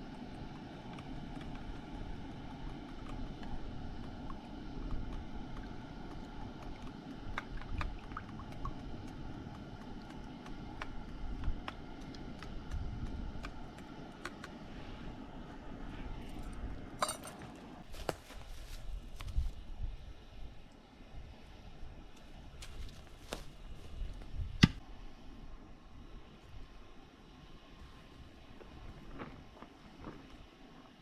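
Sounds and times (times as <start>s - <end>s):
cookware clicks and crackles: 17.0s - 17.4s.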